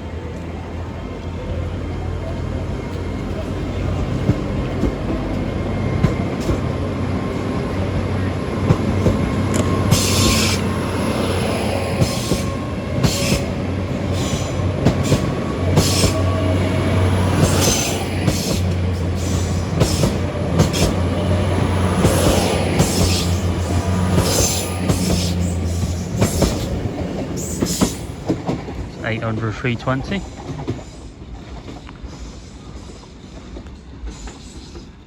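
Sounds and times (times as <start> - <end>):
train engines humming: 0.0 - 35.0
wheels squealing: 1.6 - 28.5.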